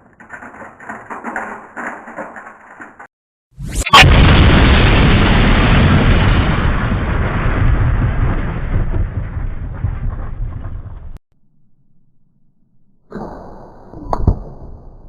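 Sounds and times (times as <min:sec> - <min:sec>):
explosion-like boom: 0:03.6 - 0:11.2.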